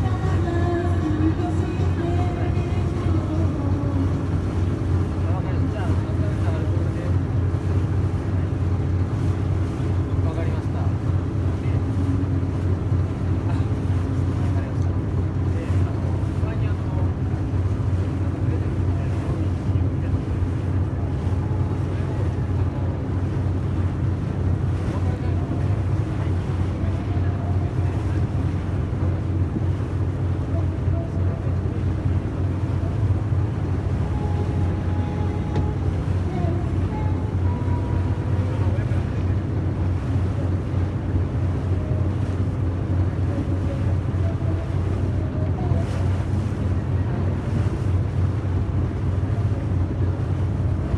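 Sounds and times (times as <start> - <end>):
boat engine droning: 0.0 - 50.9
water noise: 0.0 - 50.9
wind on microphone: 41.7 - 50.9.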